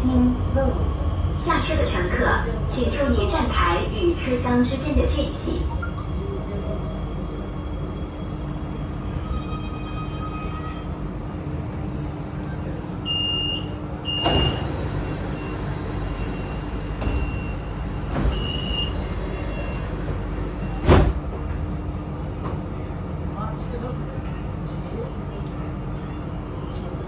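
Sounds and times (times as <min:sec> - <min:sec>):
train electrical hum: 0:00.0 - 0:27.0
door warning beeps: 0:13.1 - 0:20.9.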